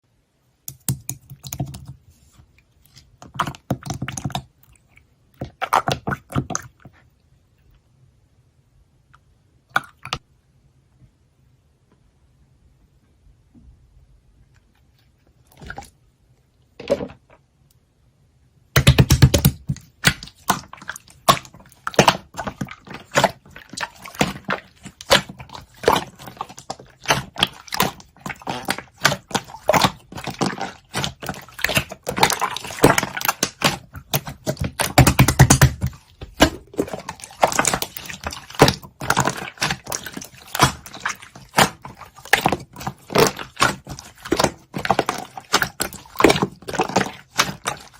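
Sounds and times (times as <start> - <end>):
slime squishing by hand: 0.7 - 7.1, 14.7 - 16.0, 18.7 - 47.9.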